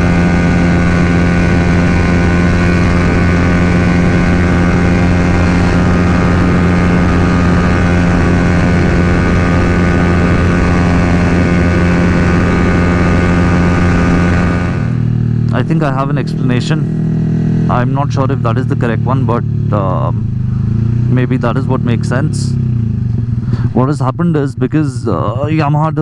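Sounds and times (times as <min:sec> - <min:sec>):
wind rushing: 0:00.0 - 0:15.2
motorcycle engine at high revs: 0:00.0 - 0:26.0.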